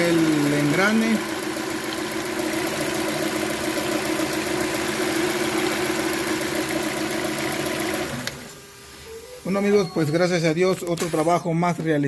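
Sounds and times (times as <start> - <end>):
car engine idling: 0.0 - 8.0.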